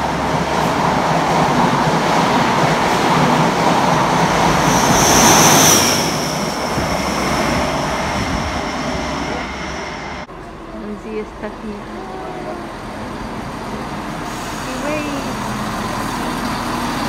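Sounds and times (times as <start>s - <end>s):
train passing at speed: 0.0s - 17.0s
high whine: 4.0s - 10.3s.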